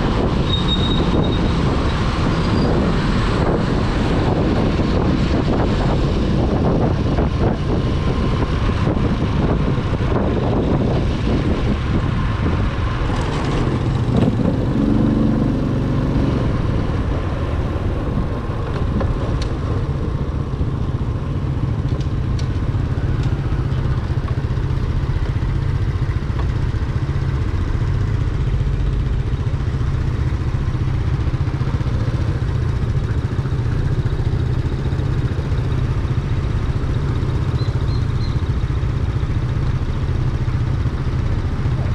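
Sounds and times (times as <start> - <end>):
wind rumble on microphone: 0.0 - 27.0
motorcycle engine running: 0.0 - 41.9.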